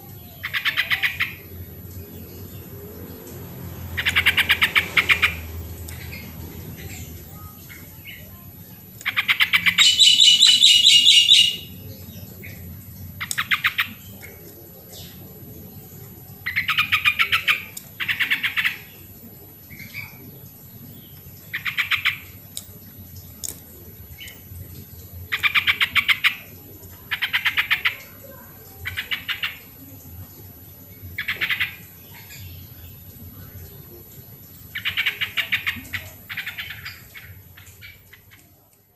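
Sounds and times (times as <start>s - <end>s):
bird calling: 9.0s - 12.6s.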